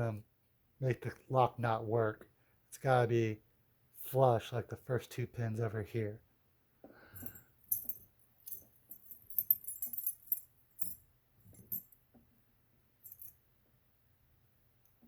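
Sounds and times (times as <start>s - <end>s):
small lock parts clinking: 7.2s - 12.0s, 13.0s - 13.4s.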